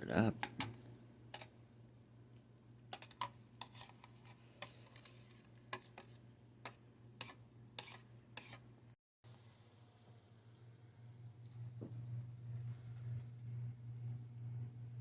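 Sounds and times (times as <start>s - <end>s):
low hum: 9.3s - 15.0s.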